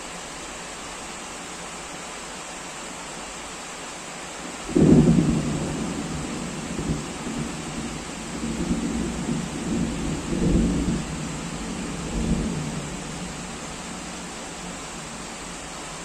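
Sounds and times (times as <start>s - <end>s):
heavy rain: 0.0s - 16.0s
thunder rumbling: 4.7s - 15.2s.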